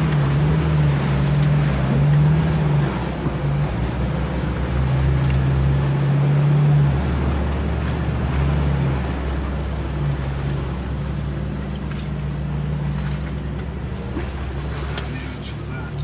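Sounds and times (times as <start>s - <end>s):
car engine from inside cabin: 0.0s - 16.0s
light clicks and rattles: 1.2s - 9.8s.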